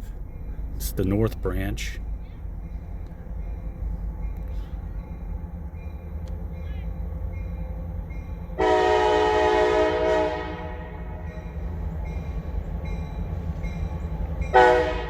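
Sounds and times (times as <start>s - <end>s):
train rumbling: 0.0s - 15.0s
locomotive air horn blast: 8.6s - 11.4s, 14.5s - 15.0s.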